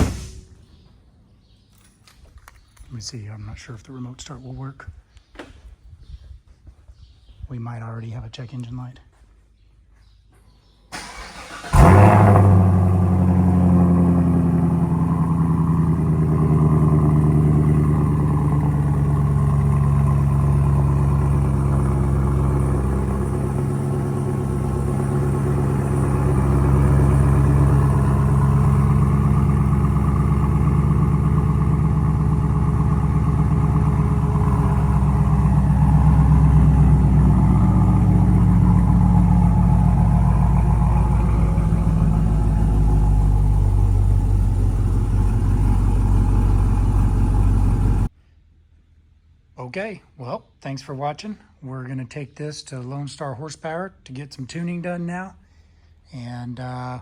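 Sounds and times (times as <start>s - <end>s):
car engine starting and idling: 10.9s - 48.2s.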